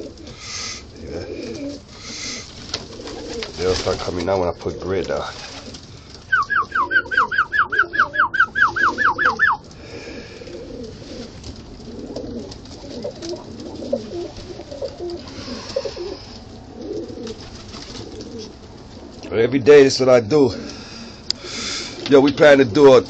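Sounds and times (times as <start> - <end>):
pigeons cooing: 0.0 - 23.0
high descending chirping notes: 6.3 - 9.6.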